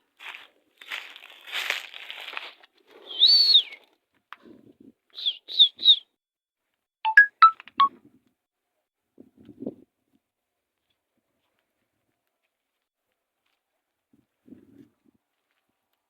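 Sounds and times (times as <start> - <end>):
high whistled calls: 3.1 - 3.8, 5.2 - 6.0.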